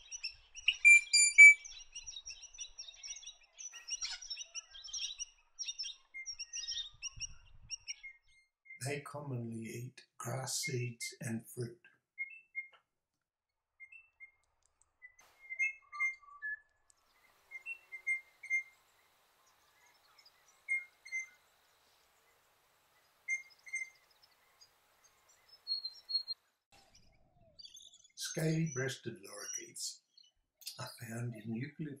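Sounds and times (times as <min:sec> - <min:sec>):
parrot whistled calls: 0:00.7 - 0:01.7.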